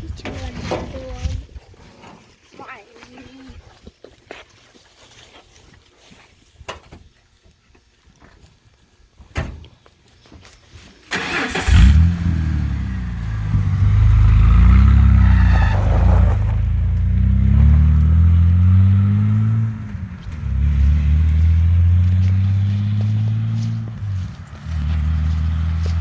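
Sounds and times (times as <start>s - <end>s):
truck exhaust rumbling: 11.2s - 26.0s.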